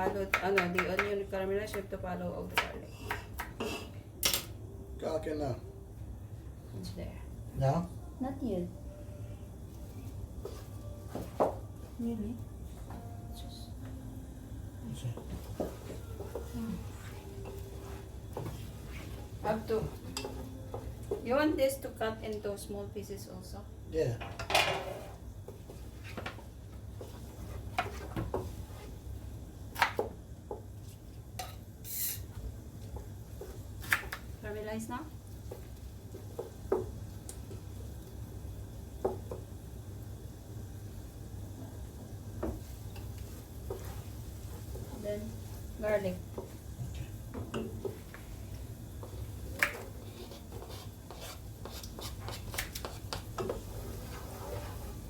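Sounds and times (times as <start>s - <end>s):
knife cutting on chopping board: 49.7s - 53.2s.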